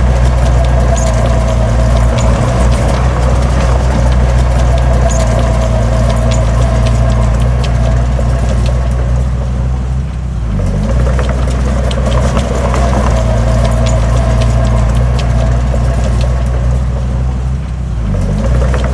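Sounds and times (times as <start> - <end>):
heavy diesel engine running: 0.0 - 18.9
sharp metallic clanks: 0.0 - 18.9.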